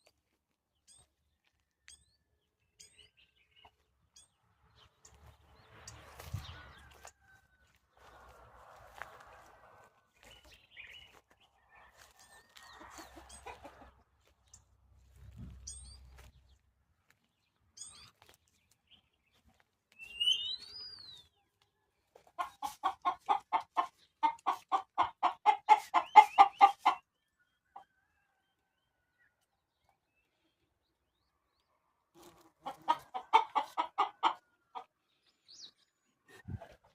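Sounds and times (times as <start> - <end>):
chicken clucking: 5.9 - 14.6, 22.1 - 27.1, 32.2 - 35.0
whistled bird call: 20.1 - 21.0.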